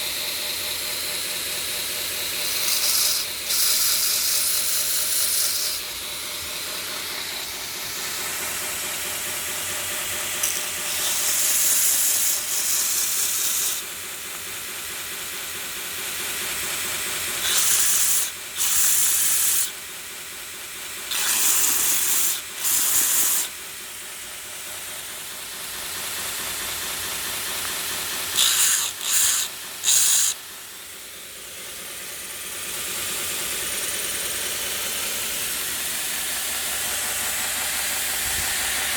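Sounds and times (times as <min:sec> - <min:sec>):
belt grinder running: 0:00.0 - 0:38.9
grinding bursts against belt: 0:00.9 - 0:19.9, 0:20.8 - 0:30.6.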